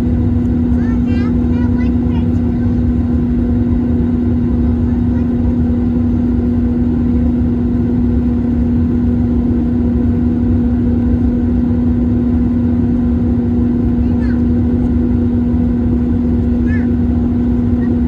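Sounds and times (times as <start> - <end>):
airplane cabin engine rumble: 0.0 - 18.0.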